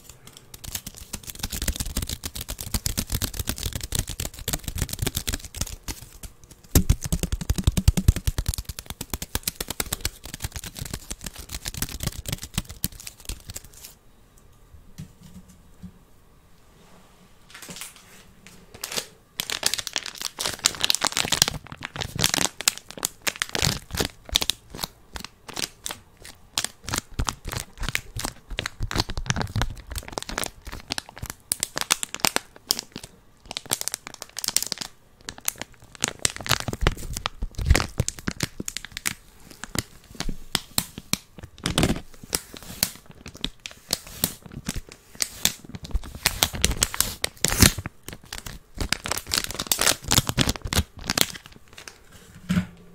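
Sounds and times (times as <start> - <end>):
crinkling and crackling handling: 17.5 - 52.8.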